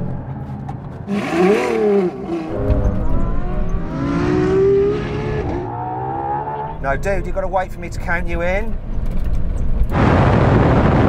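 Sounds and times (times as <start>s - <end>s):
car engine accelerating hard: 0.4s - 6.8s.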